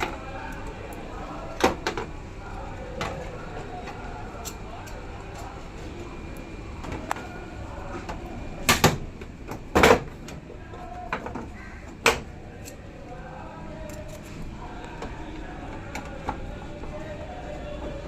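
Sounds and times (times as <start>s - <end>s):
steady low hum: 0.0s - 18.0s
hard parts clunking and knocking: 8.0s - 10.4s, 11.1s - 12.3s.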